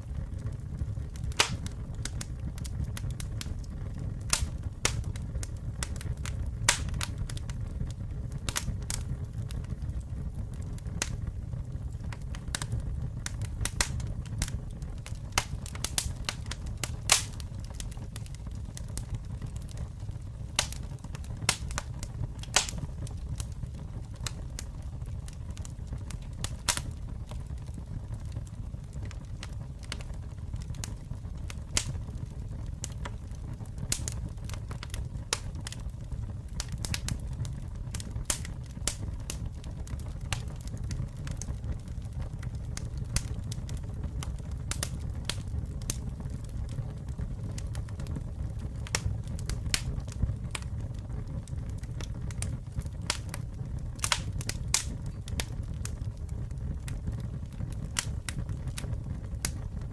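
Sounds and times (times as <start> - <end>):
campfire flames rumbling: 0.0 - 59.9
wood crackling and popping: 0.0 - 59.9.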